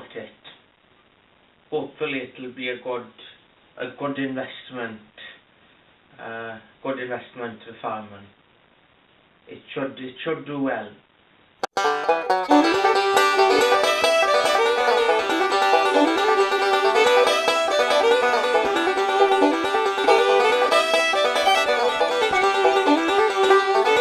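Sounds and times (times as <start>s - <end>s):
fast plucked banjo tune: 11.6s - 24.0s.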